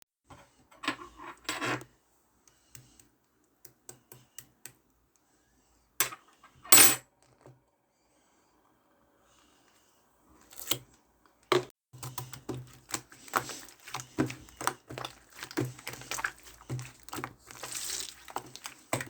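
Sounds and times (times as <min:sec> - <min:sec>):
slime squishes: 0:12.0 - 0:19.0.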